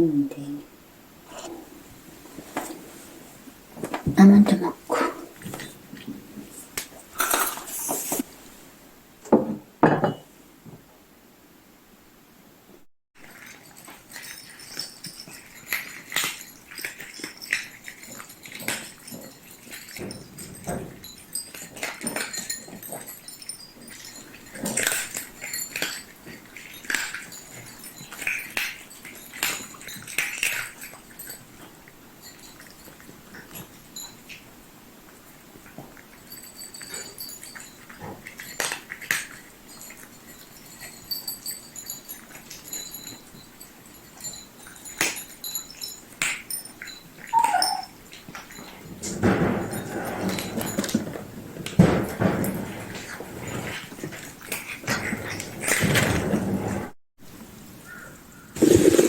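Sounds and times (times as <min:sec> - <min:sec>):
scraping rustle: 0:06.4 - 0:08.6
cup set down on table: 0:09.3 - 0:10.2
dishes and cutlery clinking: 0:09.3 - 0:10.3, 0:13.2 - 0:34.5, 0:35.6 - 0:56.4
pet whimpering: 0:47.3 - 0:48.0.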